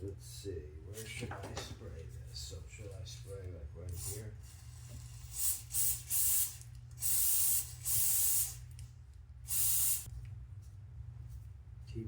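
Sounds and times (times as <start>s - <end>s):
aerosol spray hissing: 4.0s - 8.6s, 9.5s - 10.1s.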